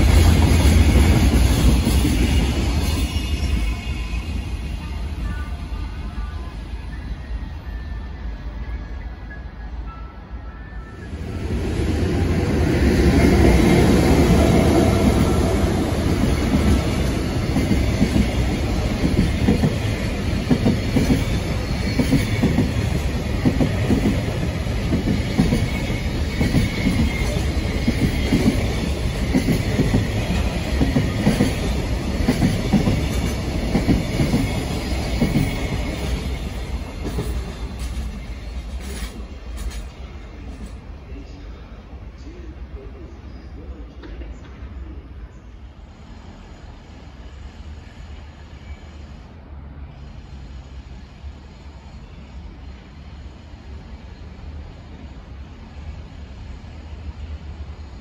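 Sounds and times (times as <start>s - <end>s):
train wheels clattering over rail joints: 16.4s - 40.0s.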